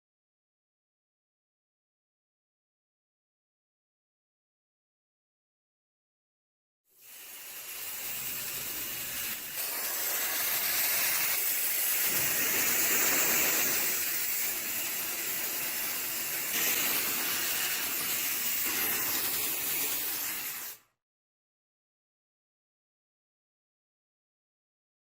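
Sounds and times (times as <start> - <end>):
steady high hiss: 7.0 - 20.8.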